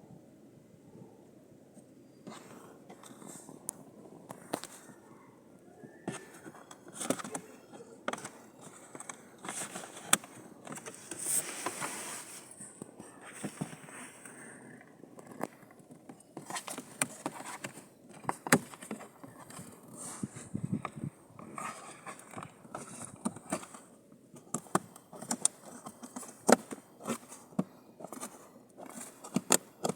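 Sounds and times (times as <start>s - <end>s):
scraping rustle: 6.0s - 14.5s.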